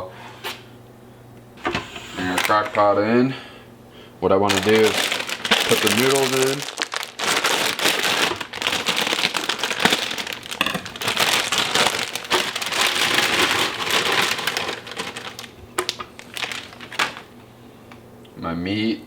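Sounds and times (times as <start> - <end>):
plastic bag crinkling: 4.4 - 17.4.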